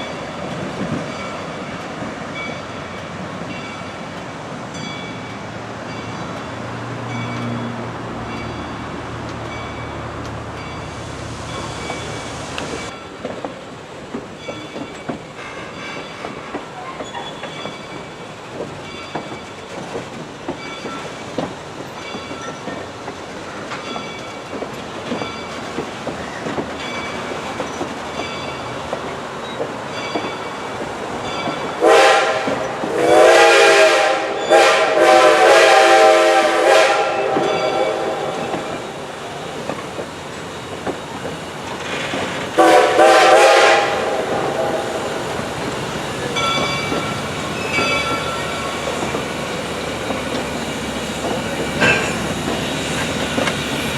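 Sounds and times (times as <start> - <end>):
rail joints clicking: 0.0 - 33.0, 37.2 - 53.9
train wheels rumbling: 0.0 - 53.9
locomotive horn blasts: 31.8 - 39.0, 42.6 - 45.5.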